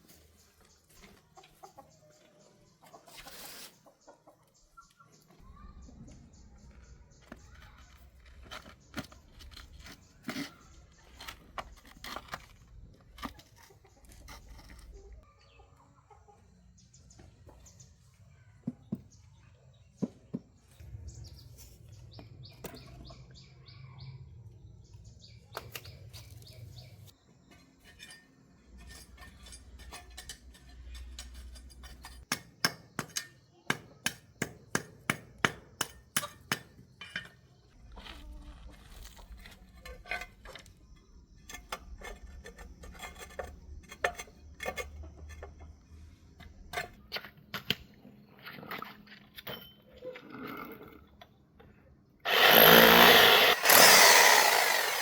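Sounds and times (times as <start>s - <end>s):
chickens clucking: 0.6s - 5.3s, 13.3s - 16.6s.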